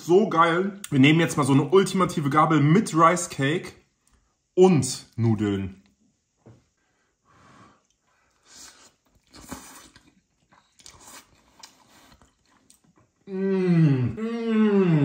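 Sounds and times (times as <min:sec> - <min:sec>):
man chewing noodles: 0:07.8 - 0:13.3.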